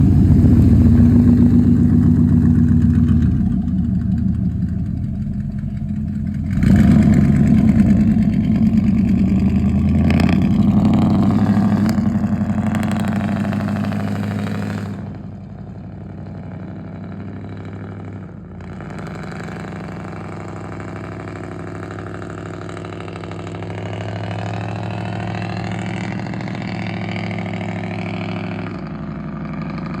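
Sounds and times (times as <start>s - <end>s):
engine exhaust revving: 0.0s - 30.0s.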